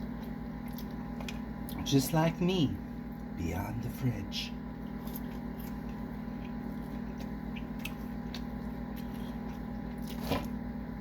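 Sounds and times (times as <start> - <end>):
faint chewing: 0.0 - 1.9, 4.8 - 10.6
low electrical hum: 0.0 - 11.0.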